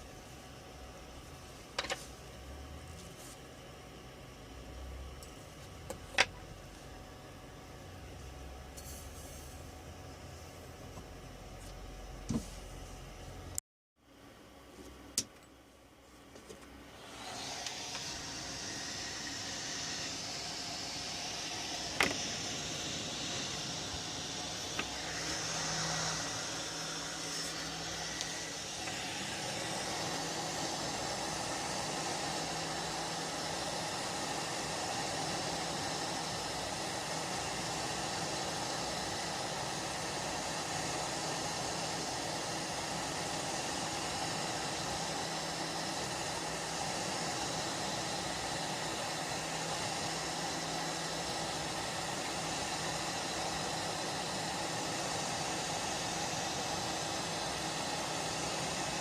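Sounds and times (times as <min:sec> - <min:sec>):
electric blower hissing: 0:16.8 - 0:59.0.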